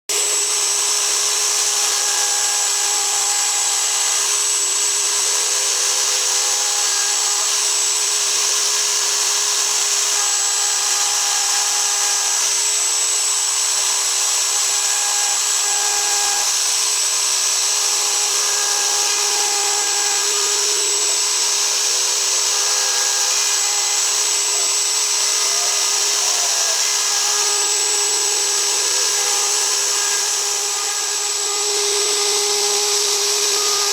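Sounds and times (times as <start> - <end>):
router spindle high whine: 0.0 - 33.9.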